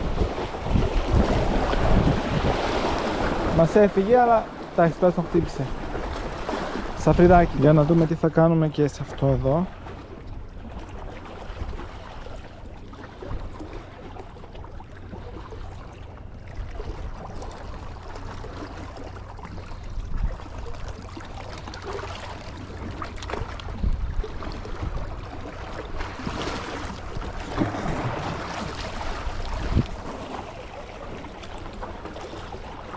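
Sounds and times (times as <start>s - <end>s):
wind rumbling on microphone: 0.0s - 8.0s, 19.5s - 21.0s, 23.3s - 30.3s
sea water washing: 0.0s - 32.9s.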